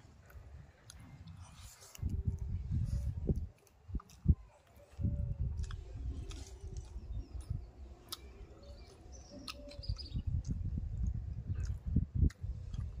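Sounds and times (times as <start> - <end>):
person chewing and smacking: 0.1 - 13.0
faint birds chirping: 0.3 - 13.0
mouth clicks: 3.2 - 13.0
steady low rumble: 5.0 - 13.0.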